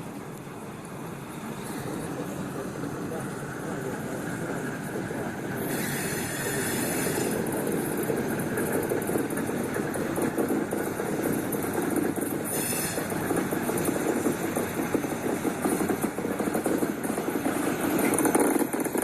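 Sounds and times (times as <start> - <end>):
train rumbling on rails: 0.0 - 19.0
wheel squeals: 5.6 - 7.6, 11.9 - 13.5.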